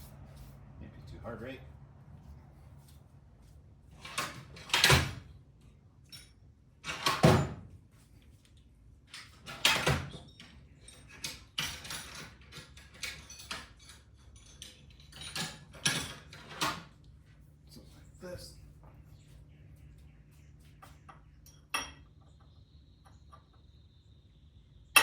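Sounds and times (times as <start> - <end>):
metal tools clanking: 9.2 - 16.8, 21.4 - 22.2.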